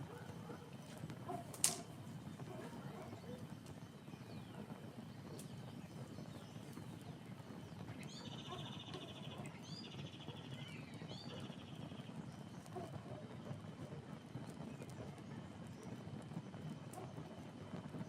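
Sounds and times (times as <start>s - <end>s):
campfire crackling and popping: 0.0s - 8.2s, 12.1s - 18.0s.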